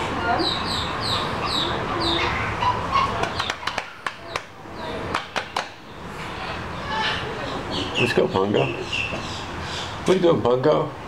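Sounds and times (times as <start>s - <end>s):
bird chirping: 0.3s - 5.1s, 5.7s - 10.2s.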